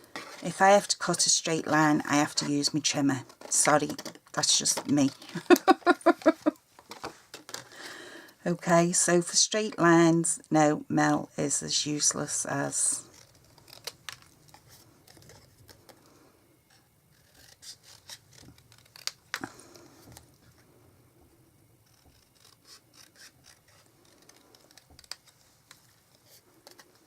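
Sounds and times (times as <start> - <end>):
scratchy paper sounds: 12.8 - 16.1, 16.7 - 20.6, 21.8 - 27.0.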